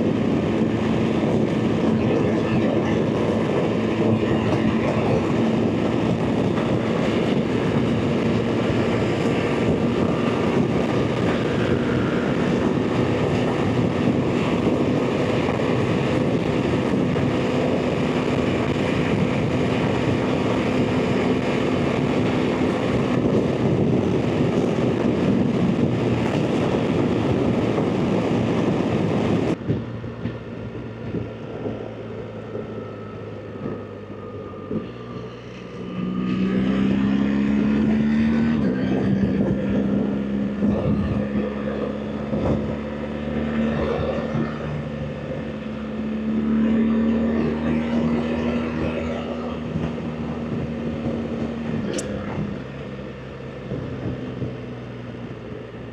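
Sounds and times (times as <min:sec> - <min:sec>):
heavy wind rush: 0:00.0 - 0:55.9
motorcycle engine revving: 0:34.6 - 0:55.5.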